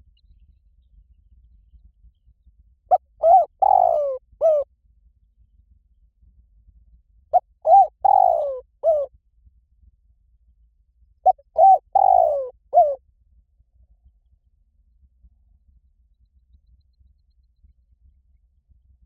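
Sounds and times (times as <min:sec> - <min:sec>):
dove cooing: 0:02.9 - 0:04.6, 0:07.4 - 0:09.1, 0:11.3 - 0:13.0.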